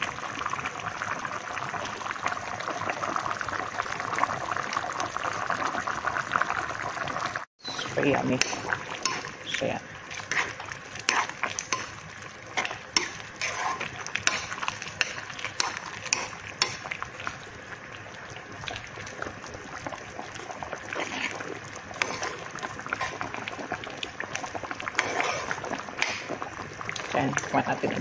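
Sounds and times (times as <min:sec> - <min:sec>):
metal ladle scraping a wok: 0:07.6 - 0:09.4, 0:10.2 - 0:16.8, 0:22.0 - 0:23.2, 0:24.9 - 0:26.2.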